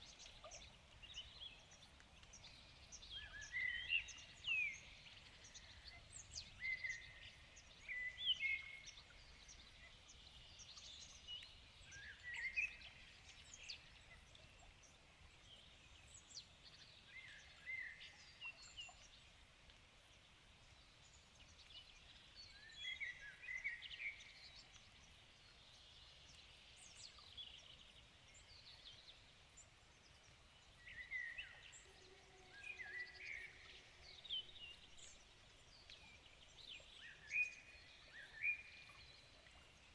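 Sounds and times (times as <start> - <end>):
faint background hiss: 0.0 - 39.9
songbirds singing and chirping: 21.6 - 39.9.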